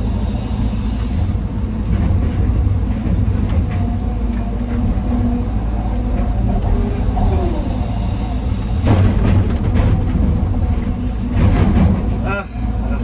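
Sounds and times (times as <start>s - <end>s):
heavy diesel machinery rumbling: 0.0s - 13.0s.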